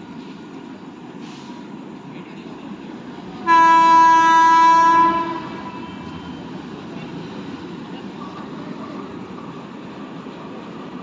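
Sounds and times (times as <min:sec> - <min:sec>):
train rolling on track: 0:00.0 - 0:11.0
locomotive horn: 0:03.4 - 0:06.2.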